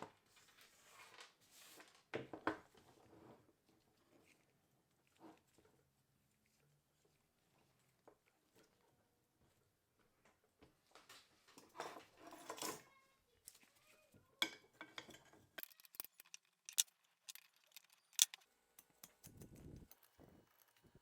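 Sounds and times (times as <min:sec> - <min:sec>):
metal parts scraping and rustling: 0:15.1 - 0:21.0
sharp metal clicks and clinks: 0:15.6 - 0:20.9.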